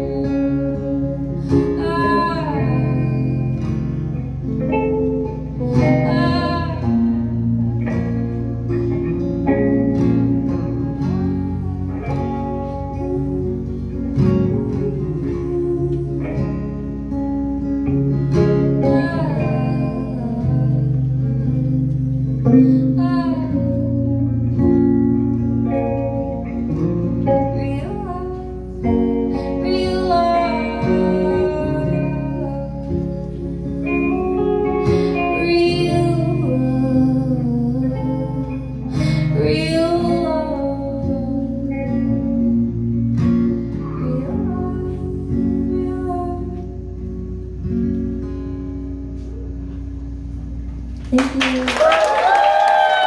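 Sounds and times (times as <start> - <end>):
person singing: 0.0 - 3.5, 10.4 - 13.5
live band playing guitar music: 0.0 - 53.0.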